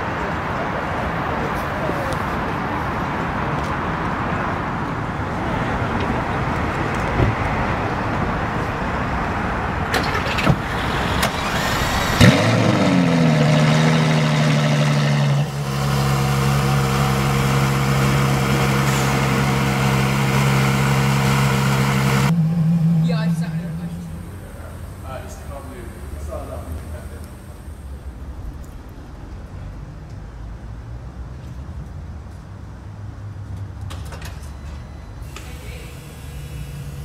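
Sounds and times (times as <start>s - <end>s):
rushing background noise: 0.0s - 31.3s
car engine starting and idling: 4.6s - 30.2s.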